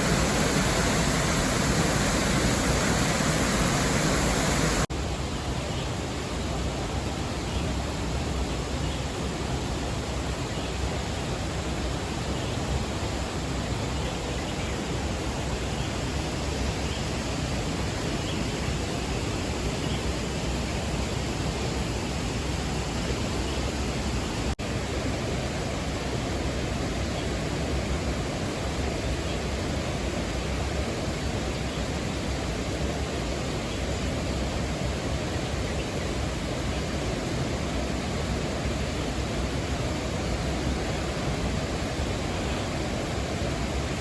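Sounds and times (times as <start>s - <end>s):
distant ocean surf roaring: 0.0s - 4.9s.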